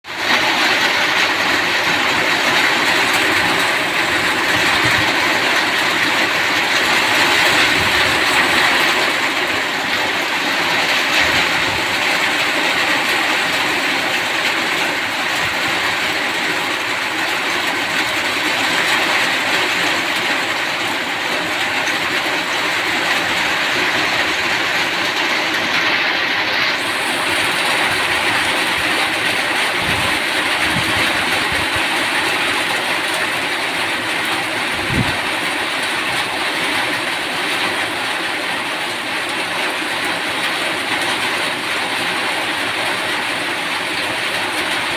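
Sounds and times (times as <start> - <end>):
rain falling steadily: 0.0 - 44.9.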